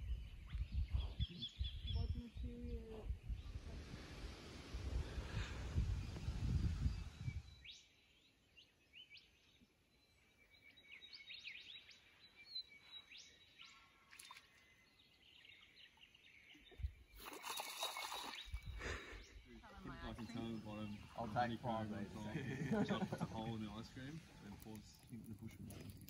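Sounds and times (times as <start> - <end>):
low rumbling noise: 1.9 - 7.5
birds chirping and calling: 16.6 - 24.1.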